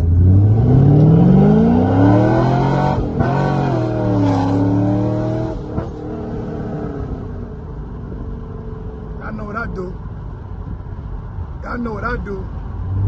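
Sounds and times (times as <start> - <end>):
car engine accelerating hard: 0.0 - 8.4.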